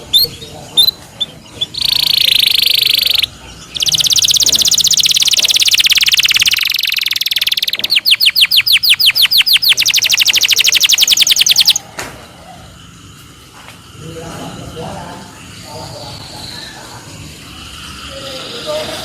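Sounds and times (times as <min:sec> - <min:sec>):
canary singing trills: 0:00.0 - 0:11.8.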